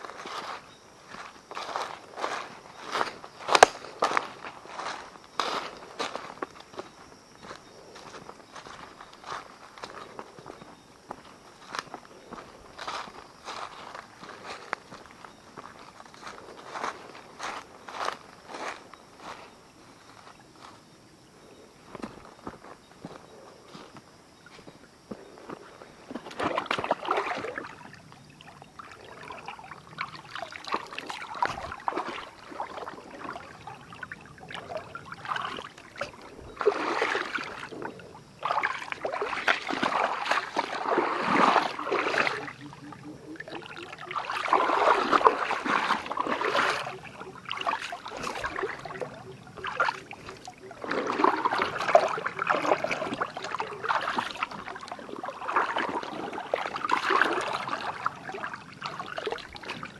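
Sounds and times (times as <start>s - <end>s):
water splashing and sloshing: 0.0s - 20.8s, 21.9s - 59.9s
water trickling: 25.5s - 59.9s.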